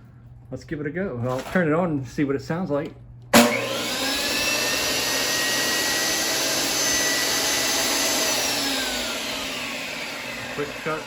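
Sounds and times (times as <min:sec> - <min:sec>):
table saw whining: 0:03.4 - 0:11.0.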